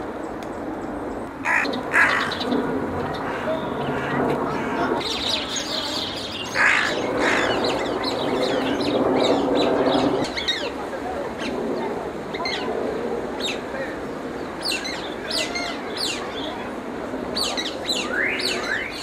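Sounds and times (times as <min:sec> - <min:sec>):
background murmur: 0:00.0 - 0:19.0
harsh caw-like bird calls: 0:01.4 - 0:05.1, 0:06.2 - 0:08.9.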